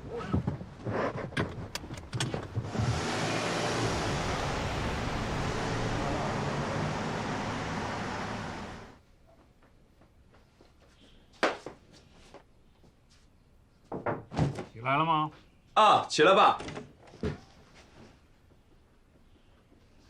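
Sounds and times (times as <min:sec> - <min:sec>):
car engine and road noise: 0:00.0 - 0:09.0.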